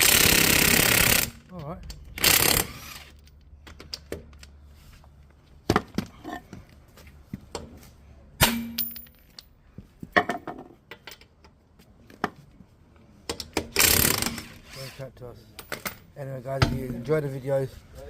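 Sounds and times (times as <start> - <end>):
metal tools clinking: 8.6 - 9.5.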